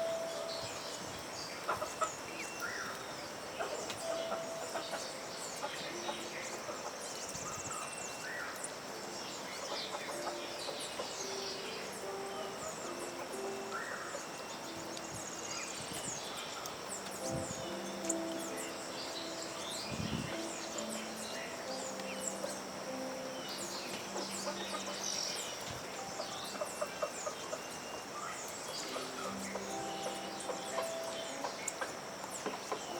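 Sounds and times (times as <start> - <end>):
small birds chirping: 0.0 - 32.9
chickens clucking: 1.6 - 2.2, 23.9 - 25.2.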